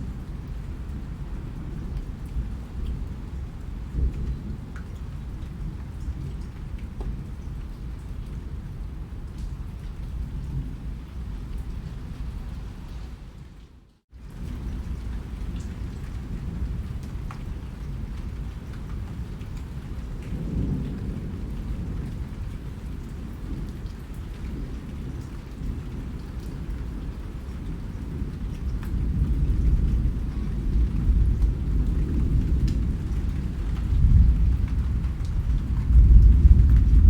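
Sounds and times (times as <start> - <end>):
rain falling: 0.0 - 37.0
thunder rumbling: 27.8 - 37.0.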